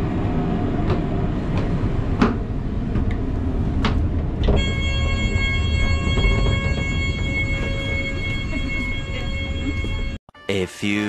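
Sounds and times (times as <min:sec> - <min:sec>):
train rumbling: 0:00.0 - 0:10.2
high-pitched tone: 0:04.6 - 0:11.0.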